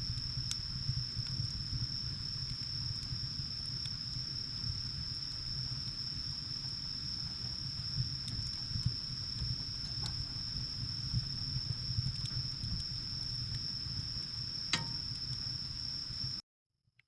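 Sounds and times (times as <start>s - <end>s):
fire crackles: 0.0s - 16.4s
wood fire rumbling: 0.0s - 16.4s
steady high-pitched tone: 14.8s - 15.1s.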